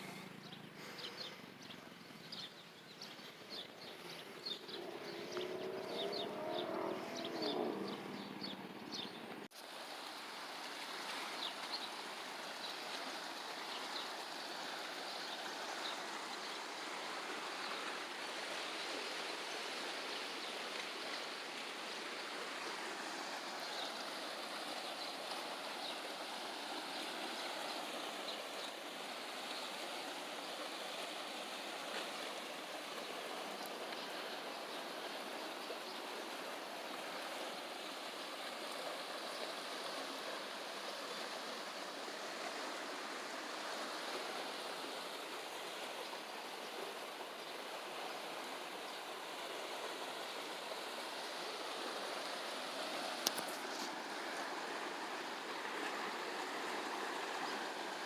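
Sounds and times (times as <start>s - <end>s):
birds chirping: 0.0s - 9.5s
flowing water: 0.0s - 58.0s.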